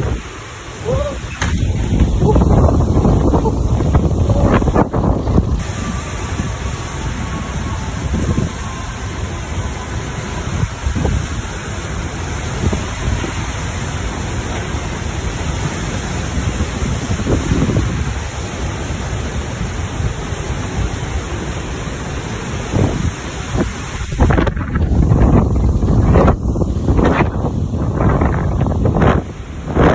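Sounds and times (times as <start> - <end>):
heavy rain: 0.0 - 29.9
wind gusts hitting microphone: 0.0 - 29.9.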